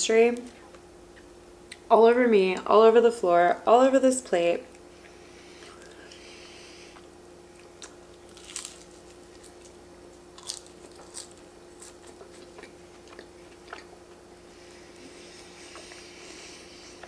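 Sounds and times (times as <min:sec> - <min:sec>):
faint steady hum: 0:00.0 - 0:17.0
pastry crunching and chewing: 0:06.9 - 0:16.3.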